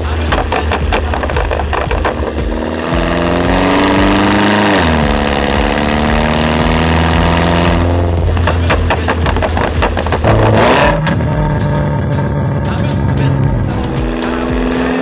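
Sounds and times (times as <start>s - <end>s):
car engine running: 0.0s - 15.0s
exhaust crackles and pops: 0.0s - 15.0s.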